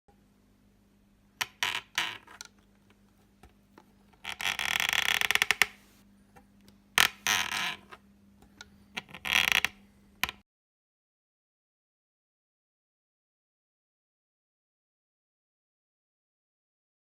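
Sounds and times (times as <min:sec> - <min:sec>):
dry plastic creaking: 0:04.1 - 0:05.8, 0:07.0 - 0:08.0, 0:08.9 - 0:10.4.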